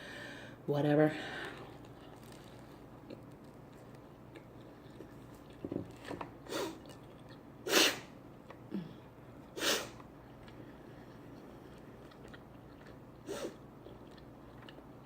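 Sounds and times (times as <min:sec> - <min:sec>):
breathy sneezes: 0:07.7 - 0:08.1, 0:09.6 - 0:10.0.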